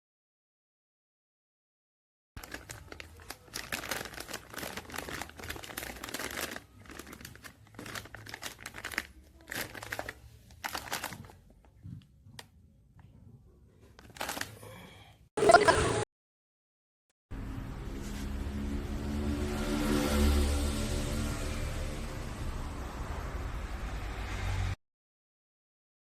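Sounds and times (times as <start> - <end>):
plastic packaging crinkling: 2.4 - 11.5, 14.0 - 14.5.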